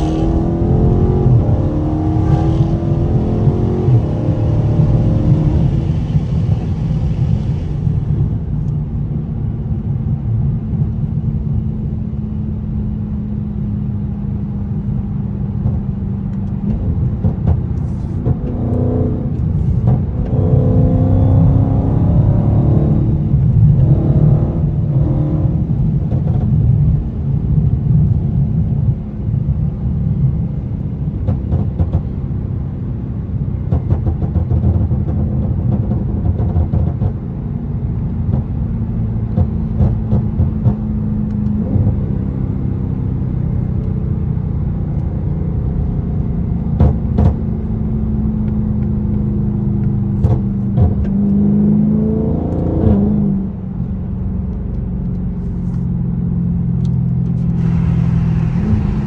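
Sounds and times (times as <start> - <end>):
car engine driving: 0.0 - 59.0
exhaust pops: 49.8 - 51.3, 56.8 - 59.0.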